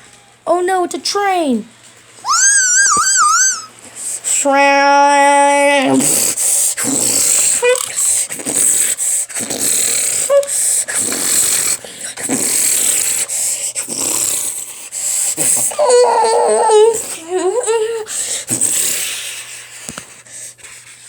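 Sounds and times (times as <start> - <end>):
voiced squeaks: 2.3 - 3.8.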